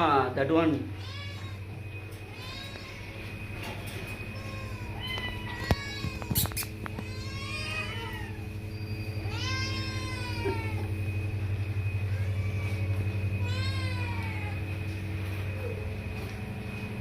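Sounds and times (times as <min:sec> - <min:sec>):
steady low hum: 0:00.0 - 0:17.0
cat meowing: 0:00.9 - 0:03.3, 0:04.2 - 0:08.5, 0:09.2 - 0:11.0, 0:12.1 - 0:14.6.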